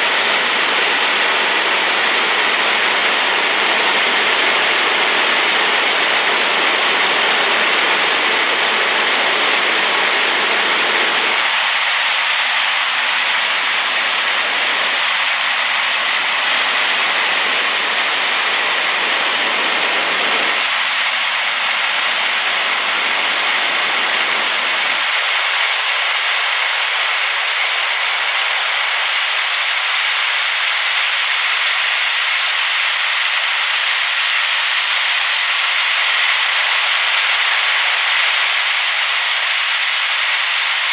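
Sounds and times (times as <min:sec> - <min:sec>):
waterfall rushing: 0:00.0 - 0:32.3.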